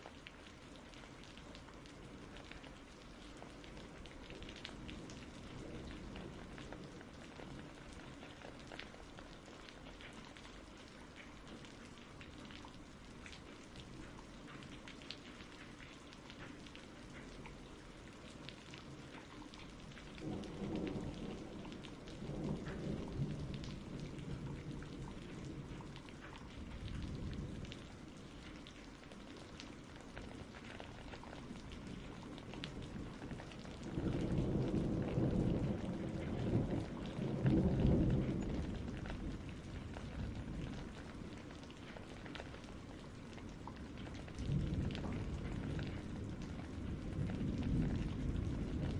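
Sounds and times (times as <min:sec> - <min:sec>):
steady rain: 0:00.0 - 0:48.9
rolling thunder: 0:20.2 - 0:25.9, 0:31.7 - 0:41.4, 0:44.2 - 0:48.9.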